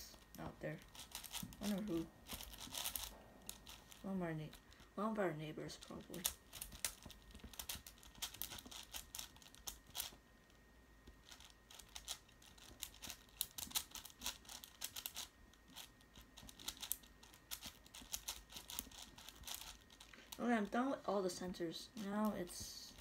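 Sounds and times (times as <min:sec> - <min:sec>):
puzzle cube clicking: 0:00.1 - 0:04.9, 0:11.2 - 0:20.4.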